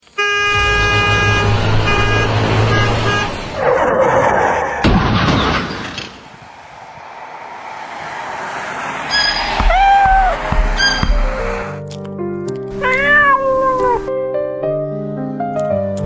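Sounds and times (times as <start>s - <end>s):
vehicle horn blaring: 0.0s - 3.6s, 9.1s - 11.7s
rushing noise: 5.8s - 11.8s.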